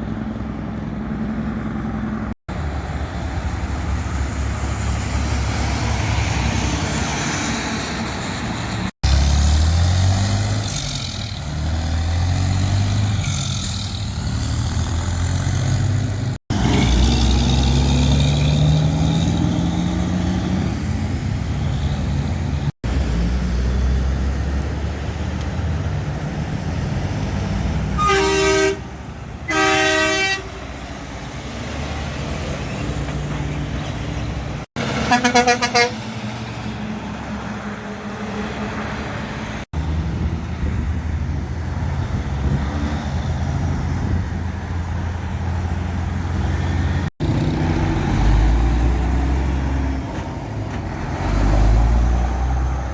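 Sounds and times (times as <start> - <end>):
heavy trucks driving past: 0.0 - 52.9
truck horn blasts: 28.0 - 30.7, 34.9 - 36.1.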